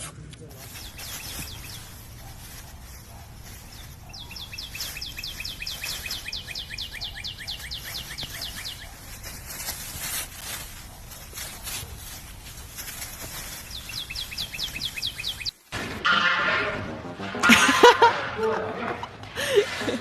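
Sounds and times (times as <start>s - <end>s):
bird chirping: 0.6s - 15.6s.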